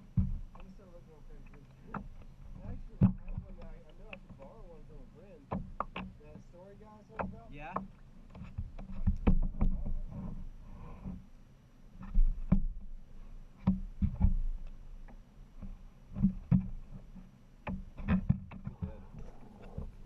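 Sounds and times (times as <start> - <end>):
paddle knocking on kayak hull: 0.0 - 0.8, 1.9 - 4.8, 7.1 - 10.3, 12.0 - 20.0.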